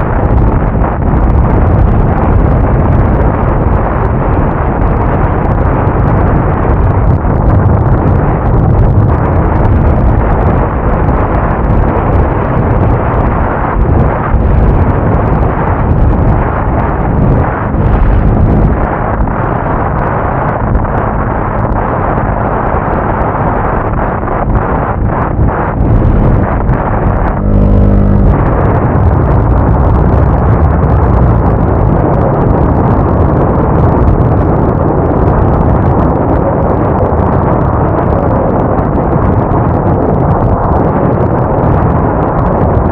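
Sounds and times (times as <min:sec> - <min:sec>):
motorcycle engine hum: 0:00.0 - 0:32.5
wind buffeting microphone: 0:00.0 - 0:42.9.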